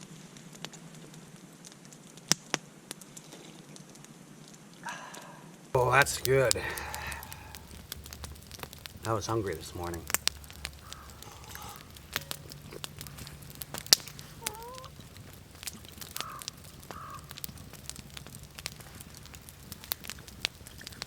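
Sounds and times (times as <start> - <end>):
wood fire crackling and popping: 0.0 - 21.0
bird calling: 5.8 - 21.0.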